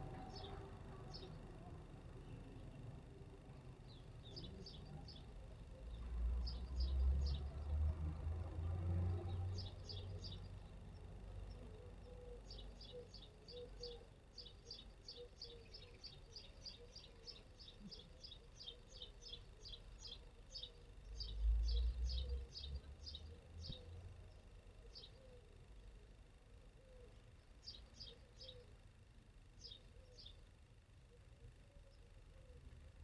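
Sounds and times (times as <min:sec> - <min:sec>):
small bird chirping: 0:09.2 - 0:25.9, 0:26.7 - 0:28.9, 0:29.5 - 0:32.7.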